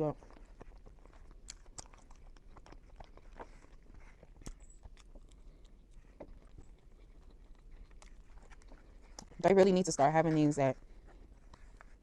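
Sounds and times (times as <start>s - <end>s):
chewing pizza: 0.0s - 12.0s
wet mouth clicks and smacks: 0.2s - 9.4s.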